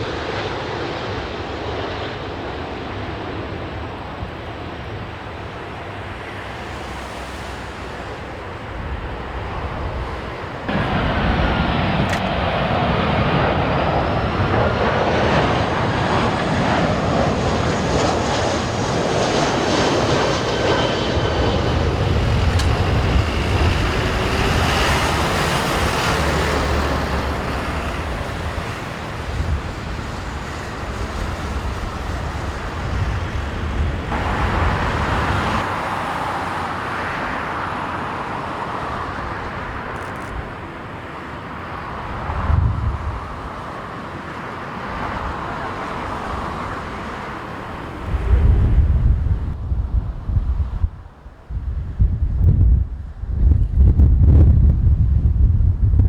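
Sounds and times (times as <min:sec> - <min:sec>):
jet airliner passing overhead: 0:00.0 - 0:56.0
wind buffeting microphone: 0:08.0 - 0:36.4, 0:41.8 - 0:43.9, 0:44.9 - 0:56.0.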